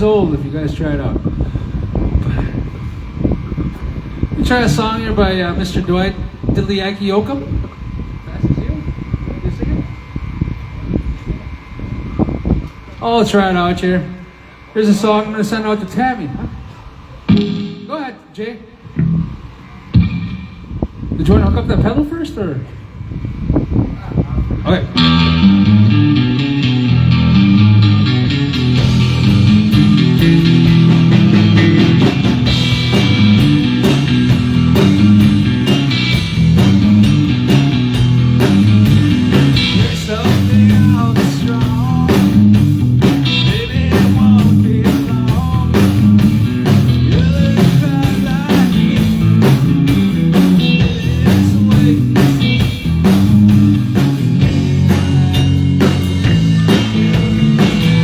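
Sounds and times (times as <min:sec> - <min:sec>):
live rock band playing: 0:17.3 - 0:17.9, 0:19.9 - 0:20.7, 0:25.0 - 0:58.0.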